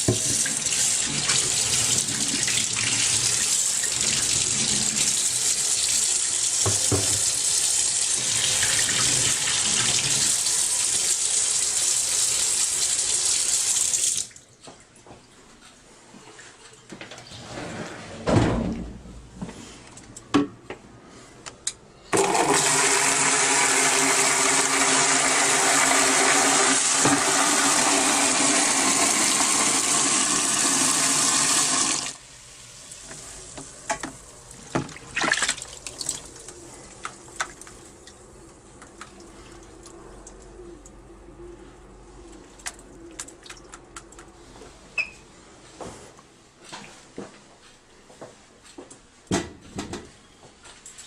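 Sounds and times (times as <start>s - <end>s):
tap water running onto speaker: 0.0s - 14.4s, 22.2s - 32.2s.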